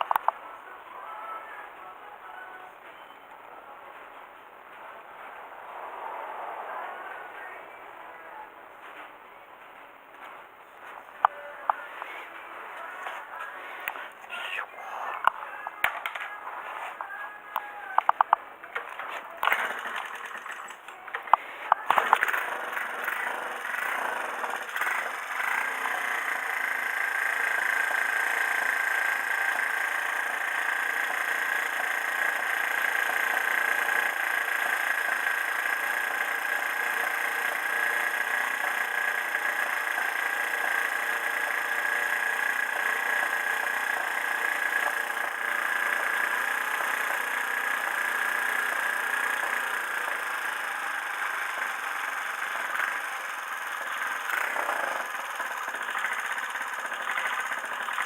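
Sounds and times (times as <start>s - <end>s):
small engine idling: 0.0s - 1.7s, 17.0s - 58.0s.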